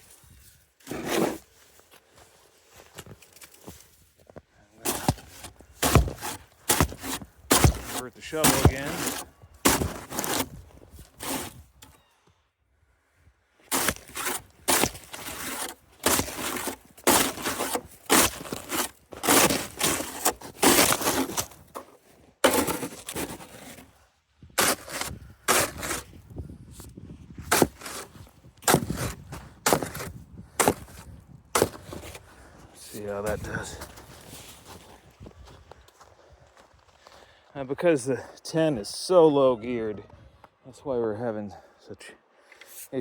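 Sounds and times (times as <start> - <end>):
snow shovel jabbing crusted snow: 0.8 - 1.7, 4.8 - 11.7, 13.6 - 24.0, 24.6 - 26.2, 27.4 - 32.2, 32.8 - 35.0.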